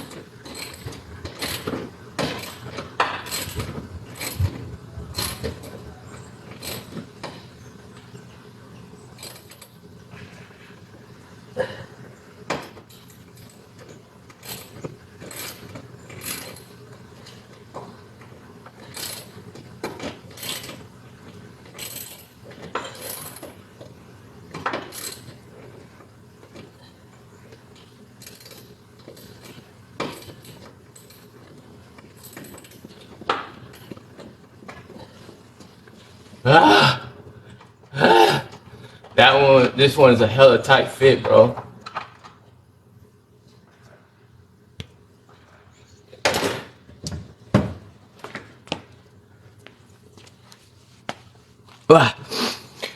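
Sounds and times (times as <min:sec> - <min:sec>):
hand tools clicking and scraping: 0:00.0 - 0:07.6, 0:12.5 - 0:20.9, 0:21.6 - 0:23.9.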